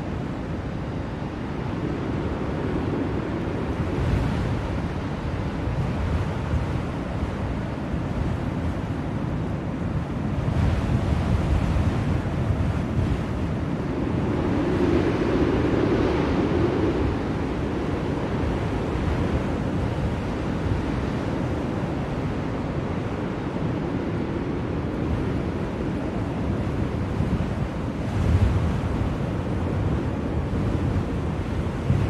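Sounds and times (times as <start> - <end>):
blizzard wind rushing: 0.0 - 32.0.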